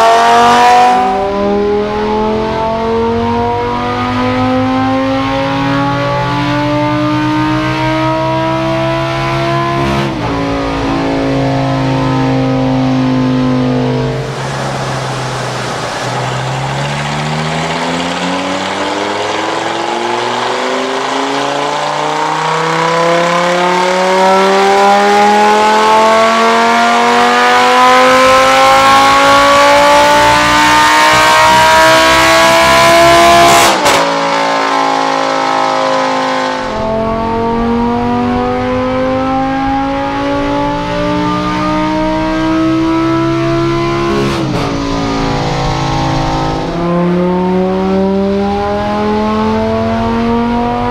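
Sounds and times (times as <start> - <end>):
sports car engine revving: 0.0 - 50.9.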